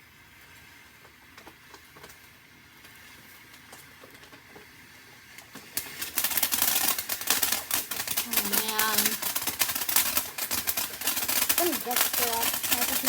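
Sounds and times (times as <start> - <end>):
firework crackling pops: 0.0 - 13.0.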